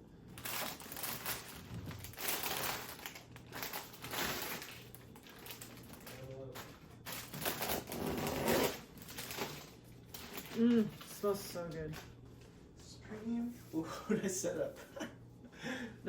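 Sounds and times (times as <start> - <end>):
bouquet wrapping crinkling: 0.4 - 12.1.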